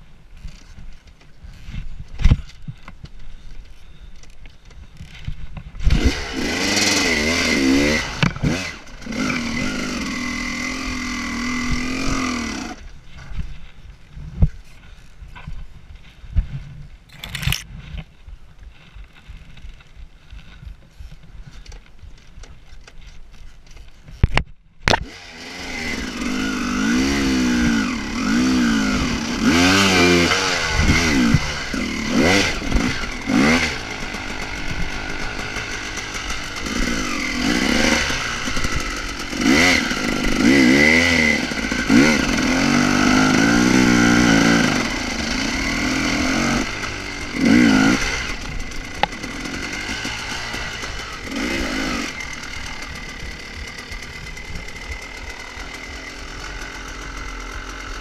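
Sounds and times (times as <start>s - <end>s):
motorcycle engine revving: 5.0s - 12.8s, 24.9s - 58.0s
sharp click: 17.1s - 17.7s.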